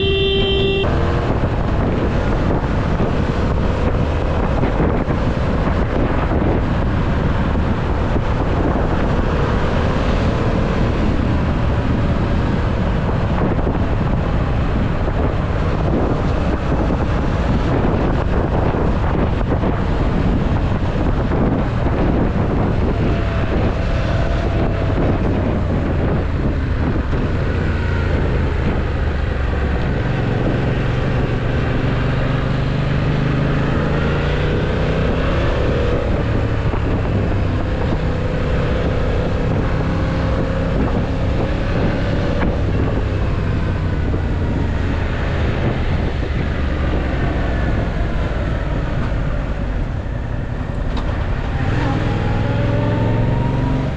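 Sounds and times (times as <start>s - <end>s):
motorcycle engine running: 0.0s - 14.3s
wind noise on microphone: 0.0s - 53.9s.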